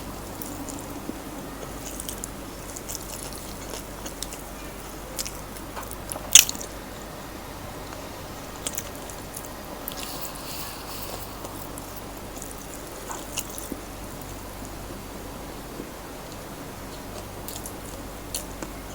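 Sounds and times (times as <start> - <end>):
crunchy bites and chewing: 1.6 - 4.6.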